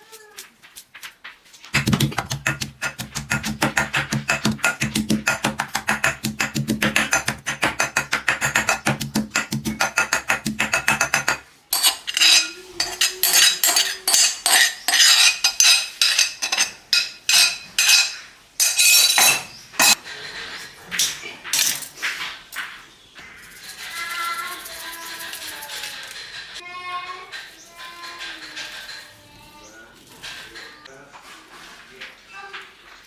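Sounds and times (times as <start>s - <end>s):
rapid knocks: 1.8s - 18.1s
dishes and utensils clinking: 1.8s - 20.0s.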